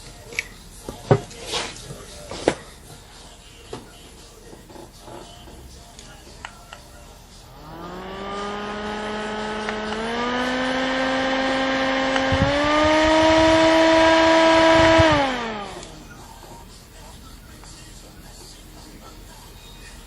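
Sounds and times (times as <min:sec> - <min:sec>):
handheld fan whirring: 0:04.8 - 0:17.2.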